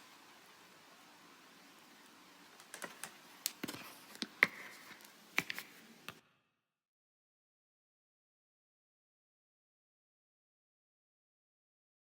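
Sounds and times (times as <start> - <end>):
faint steady hiss: 0.0 - 6.2.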